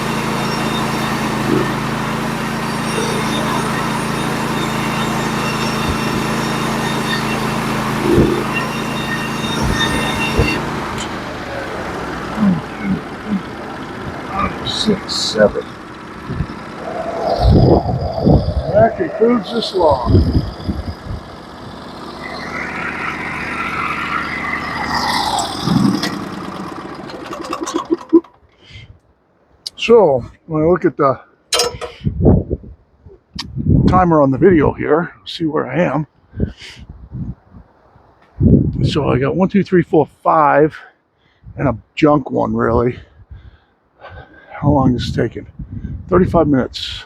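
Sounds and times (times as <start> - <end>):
band sawmill engine running: 0.0 - 28.8.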